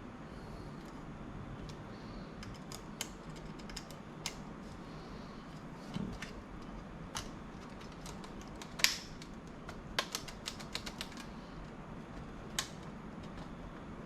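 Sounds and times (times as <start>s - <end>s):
clicks of laptop parts and tools: 2.4s - 4.4s, 5.6s - 13.5s.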